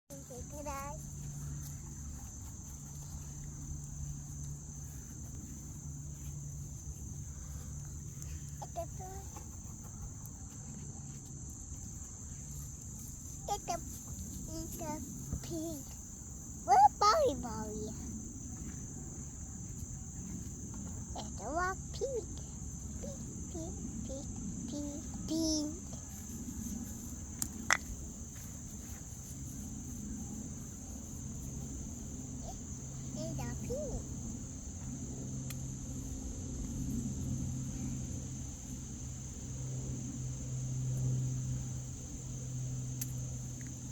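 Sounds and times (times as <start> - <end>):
high-pitched insect chorus: 0.1 - 43.9.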